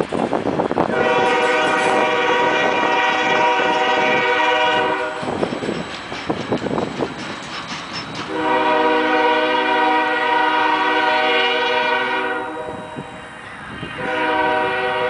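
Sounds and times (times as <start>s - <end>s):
locomotive air horn blasts: 0.9s - 5.3s, 8.3s - 13.0s, 14.0s - 15.0s.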